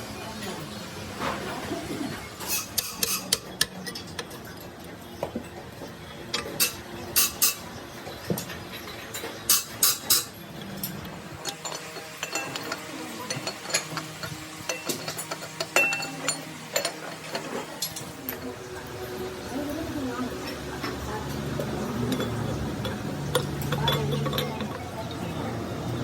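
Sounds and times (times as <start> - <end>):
metal tools clinking and knocking: 2.4 - 5.6, 6.3 - 18.6, 20.8 - 26.0.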